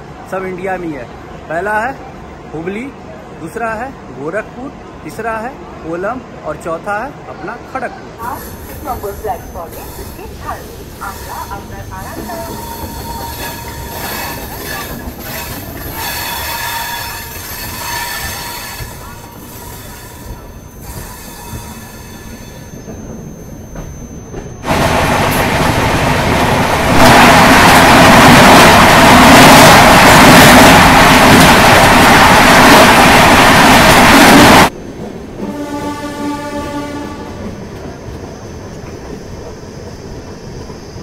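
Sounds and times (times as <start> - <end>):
low train rumble: 0.0 - 41.0
passing train rush: 0.0 - 41.0
train wheels squealing: 8.2 - 24.7, 37.6 - 41.0.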